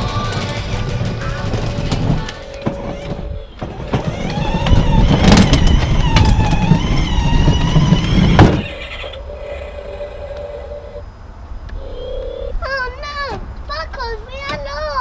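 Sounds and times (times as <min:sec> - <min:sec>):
plastic wheels rumbling on ground: 0:00.0 - 0:09.2
toy car electric motor whining: 0:01.2 - 0:11.0.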